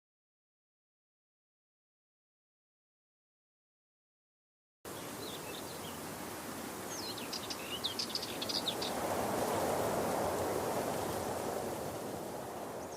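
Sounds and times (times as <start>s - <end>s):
small birds chirping: 4.9s - 9.7s.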